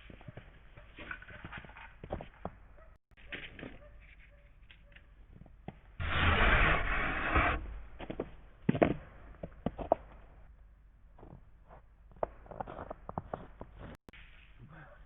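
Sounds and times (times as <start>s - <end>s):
rough rubbing scraping: 6.0s - 8.3s.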